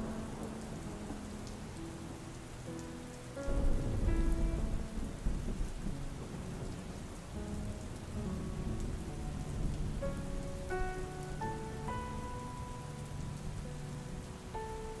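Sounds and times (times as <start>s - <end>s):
ambient music: 0.0s - 15.0s
steady rain: 0.0s - 15.0s
thunder rumbling: 0.0s - 15.0s.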